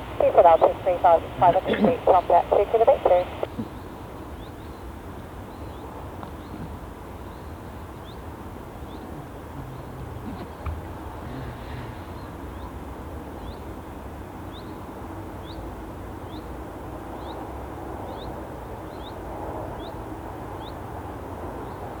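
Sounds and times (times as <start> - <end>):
outdoor background rumble: 0.0 - 22.0.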